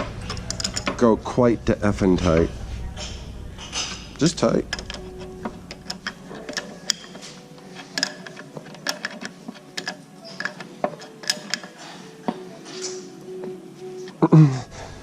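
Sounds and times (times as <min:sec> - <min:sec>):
wrench clicking on metal fittings: 0:04.7 - 0:11.8.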